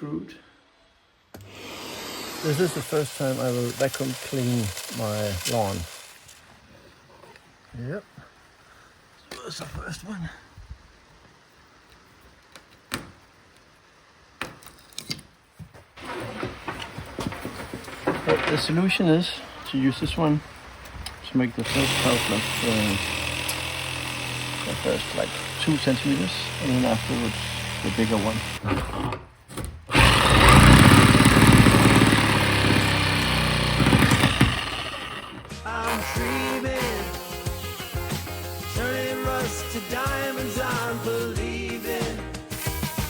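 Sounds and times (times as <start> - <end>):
steady hissing: 0.7 - 12.6, 16.0 - 28.4, 34.4 - 43.0
power drill cutting fibreglass: 1.4 - 6.4, 21.6 - 29.2, 29.9 - 43.0
hard objects knocking and clattering: 16.0 - 19.0.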